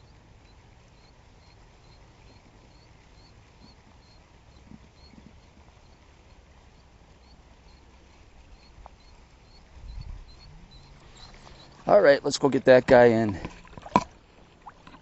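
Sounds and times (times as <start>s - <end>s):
low wind rumble: 5.4s - 12.8s.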